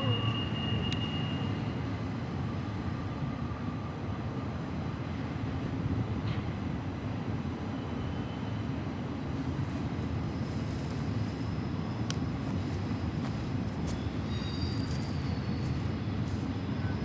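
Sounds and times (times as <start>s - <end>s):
diesel locomotive engines rumbling: 0.0s - 17.0s.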